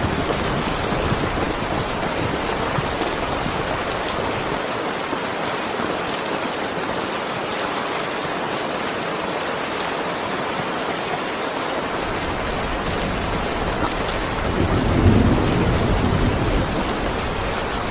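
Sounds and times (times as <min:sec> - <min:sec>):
thunder rumbling: 0:00.0 - 0:04.6, 0:12.0 - 0:17.9
heavy rain pouring: 0:00.0 - 0:17.9.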